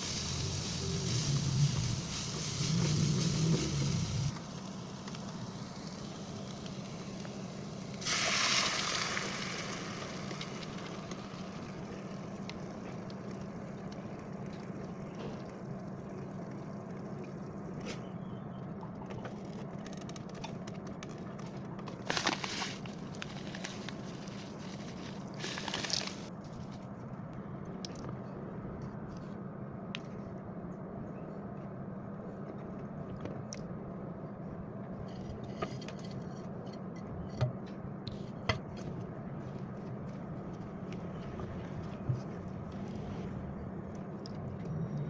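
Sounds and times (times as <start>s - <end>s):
steady low hum: 0.0s - 8.1s, 9.2s - 45.0s
food sizzling in a pan: 0.0s - 12.0s.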